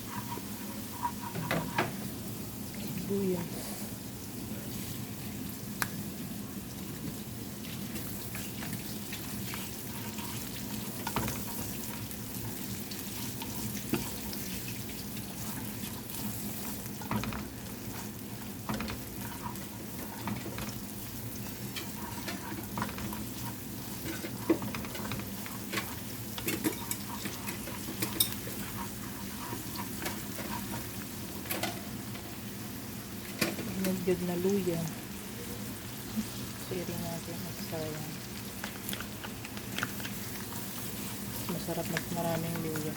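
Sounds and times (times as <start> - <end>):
utensil knocking and scraping a pan: 0.0 - 2.0, 8.6 - 14.6, 16.9 - 31.8
garlic and onion sizzling in a pan: 0.0 - 42.9.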